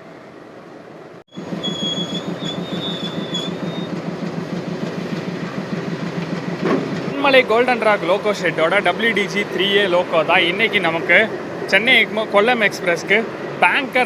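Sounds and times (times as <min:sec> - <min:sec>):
high metallic squeal: 0:01.3 - 0:04.0
diesel locomotive engine throbbing: 0:01.3 - 0:14.0.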